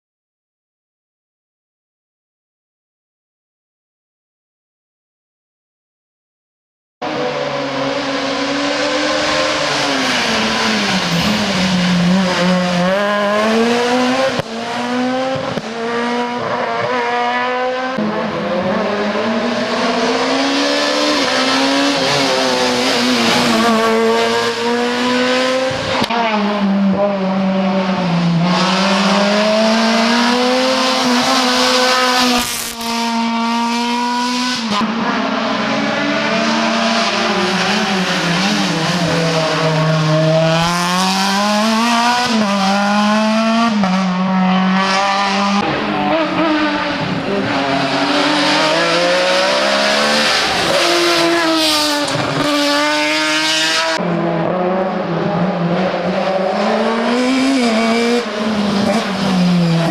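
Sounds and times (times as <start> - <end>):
race car engine revving: 7.0 - 59.9.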